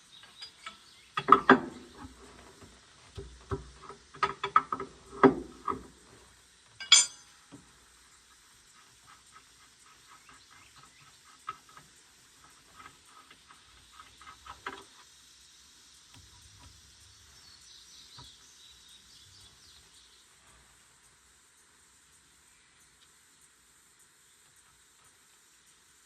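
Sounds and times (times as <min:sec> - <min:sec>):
high ticks or chirps: 0:00.0 - 0:02.2, 0:06.6 - 0:26.0.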